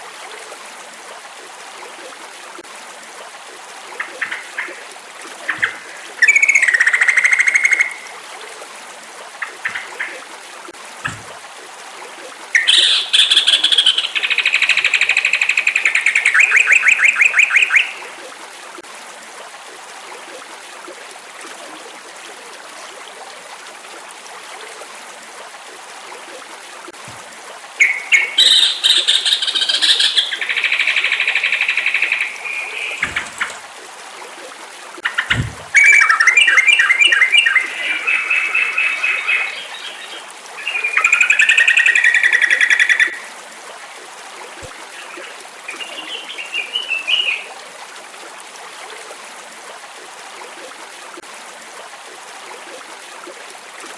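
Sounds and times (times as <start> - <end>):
soft low thumps: 11.0 - 11.4, 35.2 - 35.8.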